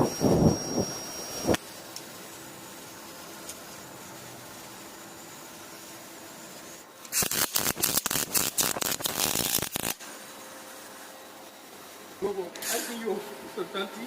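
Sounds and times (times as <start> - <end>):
steady machine hum: 0.0 - 14.0
welding arc crackling: 7.0 - 10.1.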